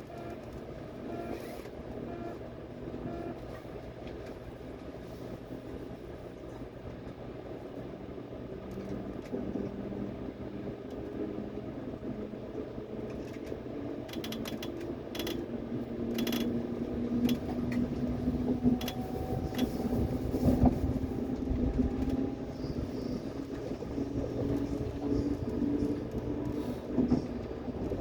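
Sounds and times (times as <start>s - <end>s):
subway train rumbling on track: 0.0s - 28.0s
sharp clicks: 13.1s - 15.4s.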